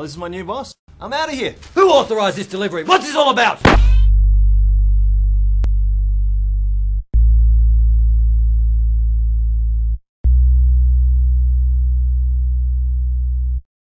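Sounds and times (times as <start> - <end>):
deep electronic bass tone: 3.7 - 13.7.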